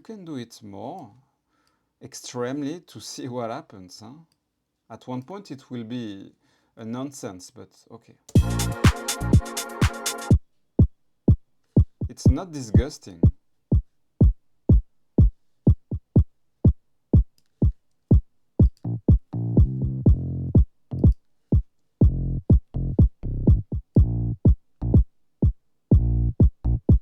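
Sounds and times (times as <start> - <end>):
sustained bass and synth chord: 8.4 - 9.6, 18.8 - 21.0, 26.0 - 26.9
short kick drum: 8.4 - 10.0, 10.8 - 27.0.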